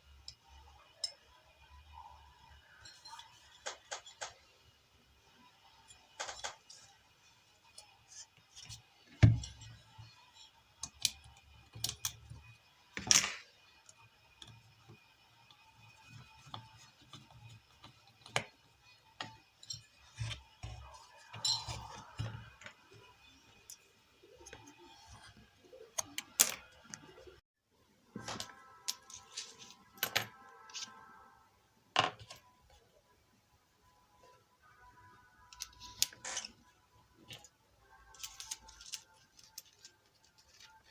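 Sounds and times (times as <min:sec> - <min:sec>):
metal tools clinking on workbench: 0:19.2 - 0:22.6.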